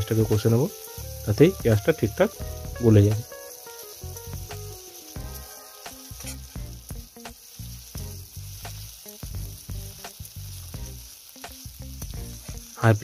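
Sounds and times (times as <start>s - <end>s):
onion sizzling in hot oil: 0.0s - 13.0s
metal spatula scraping a pan: 5.2s - 6.6s.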